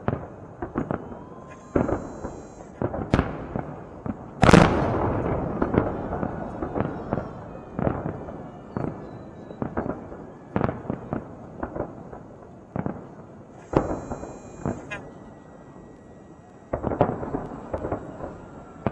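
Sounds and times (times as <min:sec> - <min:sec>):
fireworks bursting: 0:00.0 - 0:18.9
fireworks crackling: 0:00.0 - 0:18.9.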